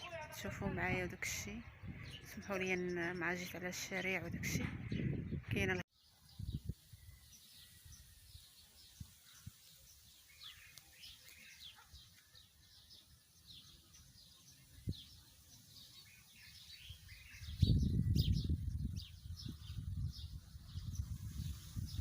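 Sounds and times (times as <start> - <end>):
wind buffeting microphone: 0.0 - 9.7, 14.8 - 15.2, 16.8 - 22.0
small birds chirping: 0.0 - 22.0.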